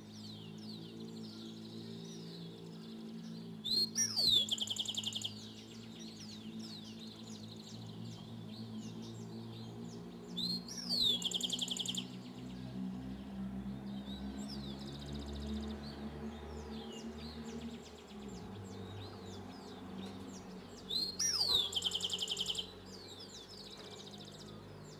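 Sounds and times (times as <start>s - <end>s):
soft bird chirps: 0.0s - 24.9s
songbird whistle and trill: 3.6s - 7.0s, 10.4s - 12.2s, 20.9s - 23.6s.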